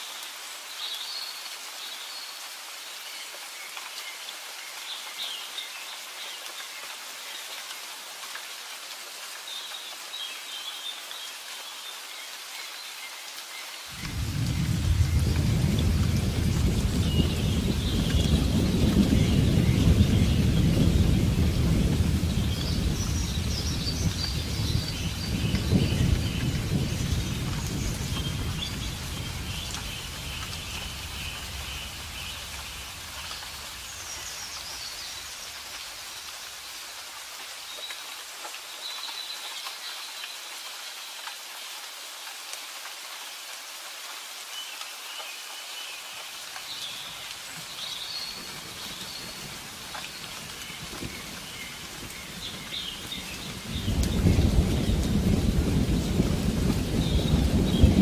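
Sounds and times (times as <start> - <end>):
steady rain falling: 0.0 - 58.0
birds chirping: 13.9 - 36.4, 46.8 - 58.0
low thunder rumble: 14.0 - 34.8, 50.8 - 58.0.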